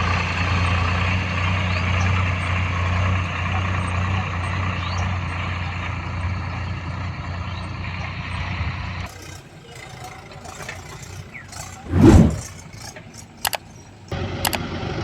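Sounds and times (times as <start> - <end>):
heavy diesel machinery running: 0.0 - 11.5
rushing burst: 11.8 - 12.4.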